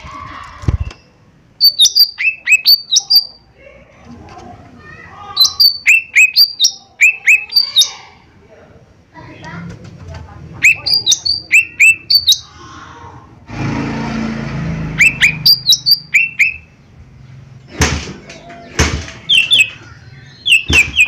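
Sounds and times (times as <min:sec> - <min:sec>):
bird chirping: 0:00.7 - 0:03.5, 0:05.4 - 0:08.1, 0:10.6 - 0:12.6, 0:14.8 - 0:17.6, 0:18.4 - 0:21.0.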